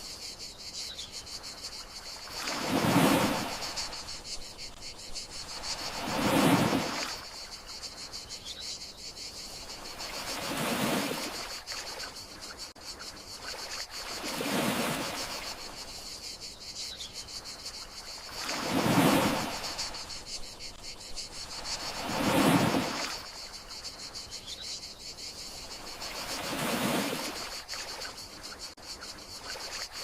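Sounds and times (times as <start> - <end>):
crickets trilling: 0.0 - 30.0
sea waves washing ashore: 1.9 - 7.8, 9.7 - 12.1, 13.6 - 16.0, 18.2 - 23.6, 25.6 - 28.5.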